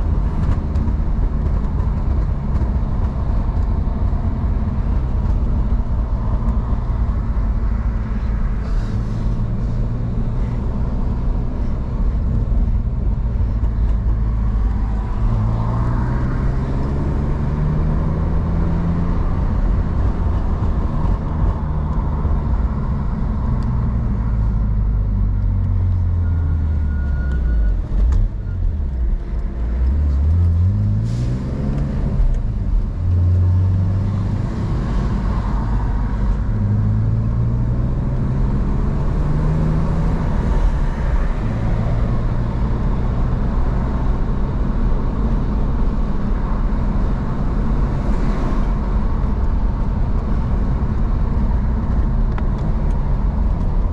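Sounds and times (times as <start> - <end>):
road noise: 0.0 - 53.9
car engine revving: 29.8 - 46.2.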